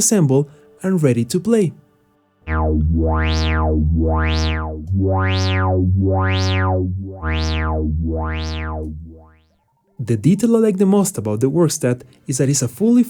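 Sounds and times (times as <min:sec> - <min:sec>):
analog synthesizer low note wah sweep: 0:02.5 - 0:09.4.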